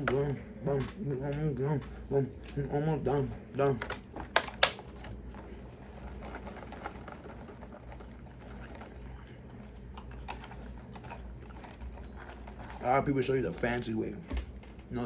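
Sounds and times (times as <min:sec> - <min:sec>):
low background hum: 0:00.0 - 0:15.0
faint chewing of leaves: 0:05.0 - 0:13.9.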